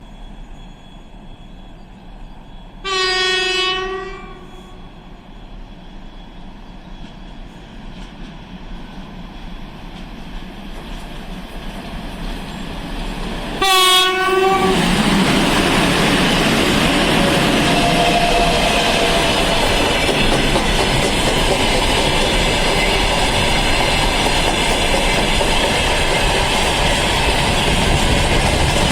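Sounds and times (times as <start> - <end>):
freight train rumbling past: 0.0 - 28.9
locomotive horn blast: 2.8 - 4.8, 13.6 - 15.0, 17.2 - 19.5.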